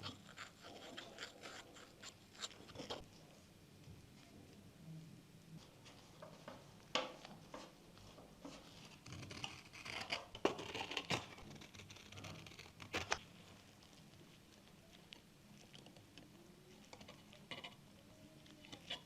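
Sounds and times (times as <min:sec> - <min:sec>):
scratching and rustling: 0:00.0 - 0:03.4, 0:05.6 - 0:19.0.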